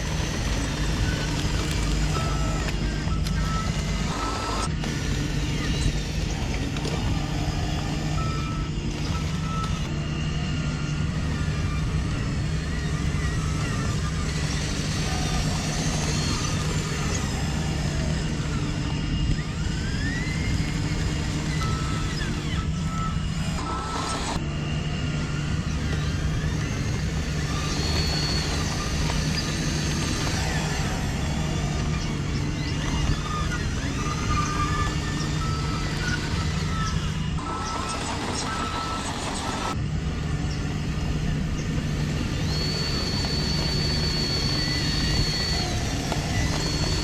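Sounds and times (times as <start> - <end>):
toy vehicle motor drone: 0.0 - 47.0.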